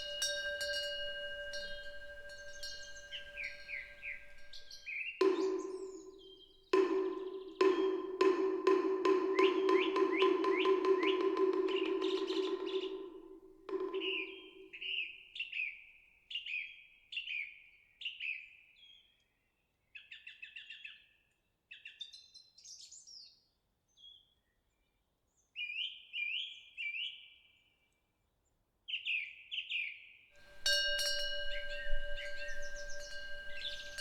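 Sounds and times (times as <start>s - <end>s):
songbird chirping and trilling: 0.0s - 7.9s, 9.4s - 19.0s, 30.5s - 34.0s.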